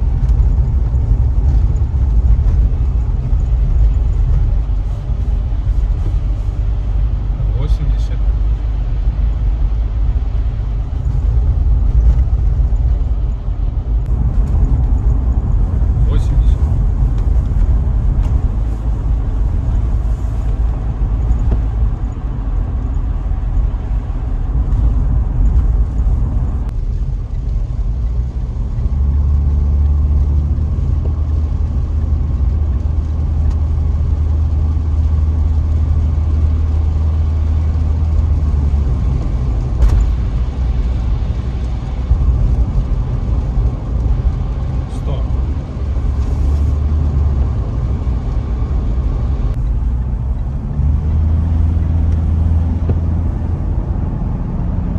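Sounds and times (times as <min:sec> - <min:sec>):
car cabin road and engine rumble: 0:00.0 - 0:54.9
deep engine drone: 0:00.0 - 0:54.9.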